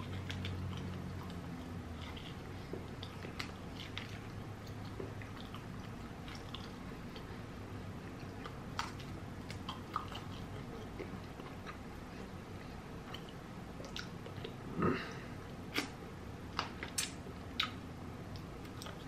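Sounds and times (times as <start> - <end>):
chewing fried chicken: 0.0 - 16.0, 16.6 - 19.0
wet mouth clicks and smacks: 16.6 - 17.8.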